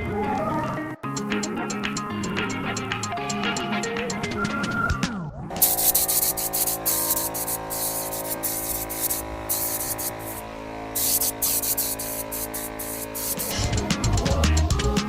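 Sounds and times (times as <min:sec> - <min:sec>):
spray paint hissing: 0:05.6 - 0:14.4.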